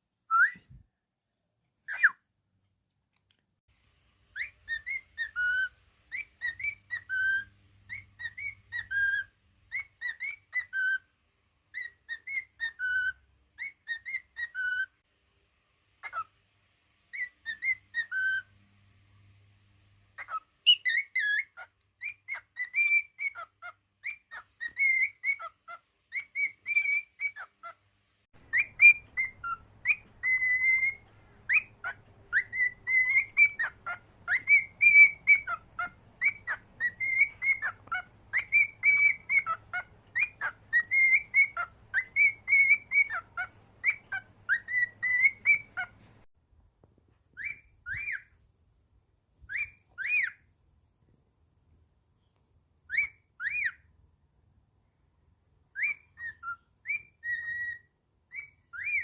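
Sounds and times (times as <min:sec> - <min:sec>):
cockatiel whistling: 0:00.3 - 0:00.8, 0:01.9 - 0:02.2, 0:04.3 - 0:11.1, 0:11.7 - 0:15.0, 0:16.0 - 0:16.3, 0:17.1 - 0:18.5, 0:20.2 - 0:27.8, 0:28.4 - 0:45.9, 0:47.4 - 0:48.4, 0:49.5 - 0:50.5, 0:52.9 - 0:53.9, 0:55.7 - 0:59.0.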